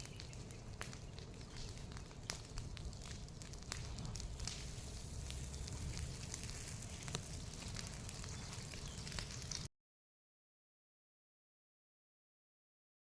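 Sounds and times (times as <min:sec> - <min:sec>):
burning wood crackling: 0:00.0 - 0:09.7
low rushing fire noise: 0:00.0 - 0:09.7.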